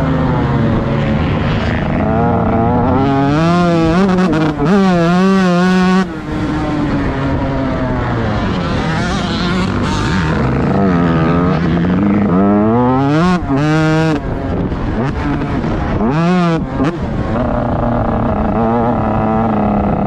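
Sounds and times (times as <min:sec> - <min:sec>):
motocross bike engine revving: 0:00.0 - 0:20.0.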